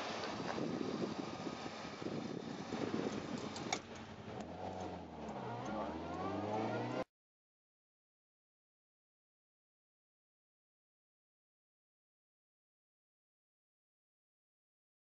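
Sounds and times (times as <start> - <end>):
car engine revving: 0.0 - 7.1.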